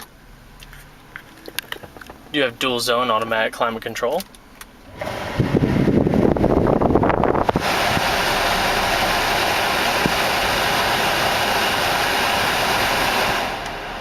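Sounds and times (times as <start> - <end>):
climate-control blower rushing air: 4.8 - 14.0.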